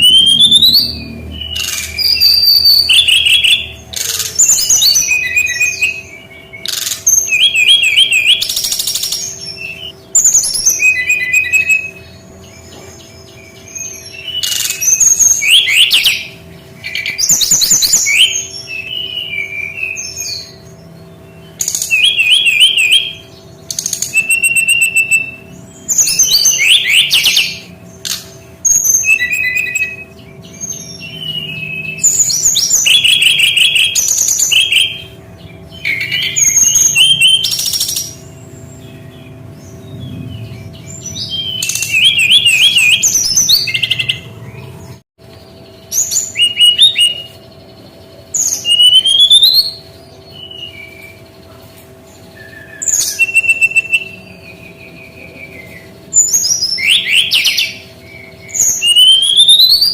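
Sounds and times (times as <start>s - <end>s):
bird chattering and whistling: 0.0s - 45.0s, 45.6s - 59.9s
faint steady hum: 0.0s - 59.9s.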